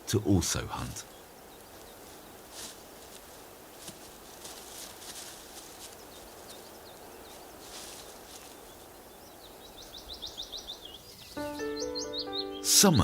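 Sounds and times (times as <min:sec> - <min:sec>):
forest hiss: 0:00.0 - 0:11.6
rapid high falling bird calls: 0:00.0 - 0:12.8
thin high bird chirps: 0:05.8 - 0:12.7.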